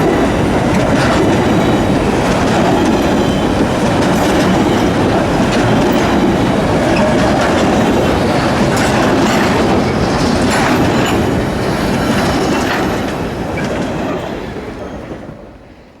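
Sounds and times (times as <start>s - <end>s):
wheels clicking over rail joints: 0.0s - 15.1s
freight train rolling past: 0.0s - 16.0s.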